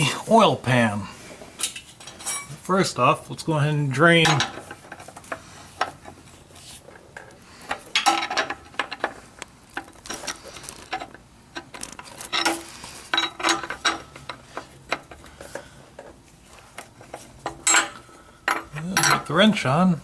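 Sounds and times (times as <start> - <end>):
metal hand tools clinking: 17.5 - 19.7.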